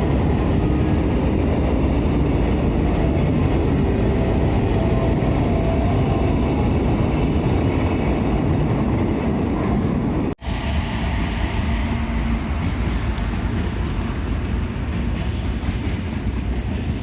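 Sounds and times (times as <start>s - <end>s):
freight train rolling past: 0.0s - 17.0s
wheels squealing on rail: 3.2s - 11.3s.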